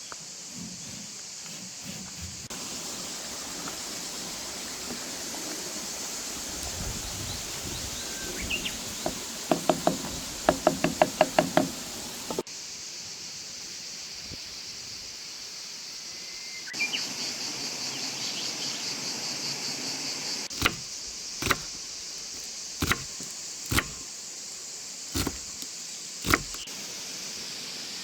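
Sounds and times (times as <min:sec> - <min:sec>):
steady hiss: 0:00.0 - 0:28.0
sharp ringing knocks: 0:09.0 - 0:12.4.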